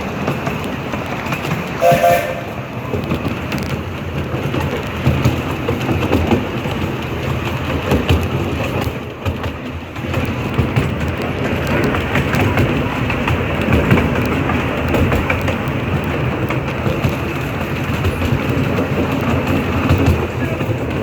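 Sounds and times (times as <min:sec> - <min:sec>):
train rumble and wheel clatter: 0:00.0 - 0:21.0
steam locomotive whistle: 0:01.8 - 0:02.9.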